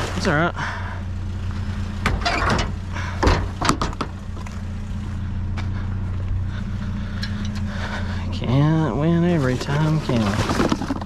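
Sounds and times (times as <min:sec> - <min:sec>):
vehicle engine idling: 0:00.0 - 0:11.0
knocks and rustles of junk moved: 0:01.9 - 0:04.8, 0:09.3 - 0:11.0.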